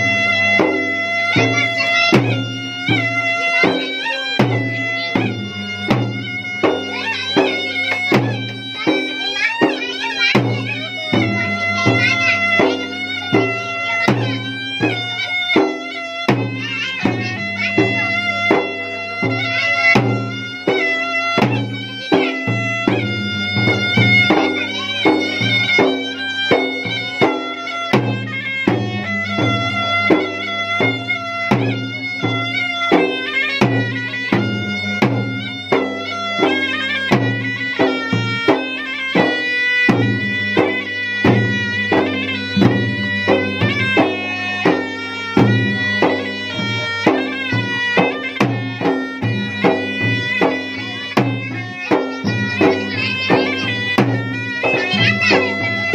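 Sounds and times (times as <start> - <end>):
drums beating: 0.0 - 55.9
reedy wind instrument melody: 0.0 - 55.9.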